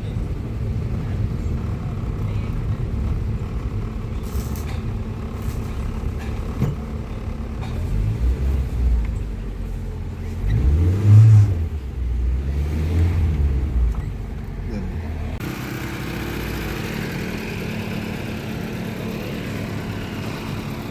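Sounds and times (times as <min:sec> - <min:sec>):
street traffic rumbling: 0:00.0 - 0:20.9
vehicle engine passing close: 0:00.0 - 0:20.9.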